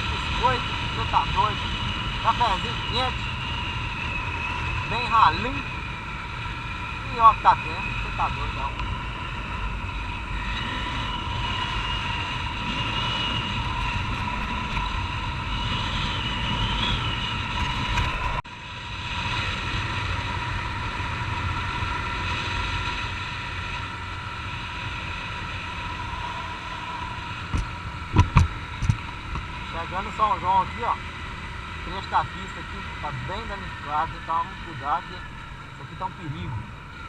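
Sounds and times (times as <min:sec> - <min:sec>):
wind rushing over microphone: 0:00.0 - 0:37.0
motorcycle engine running: 0:19.4 - 0:33.9.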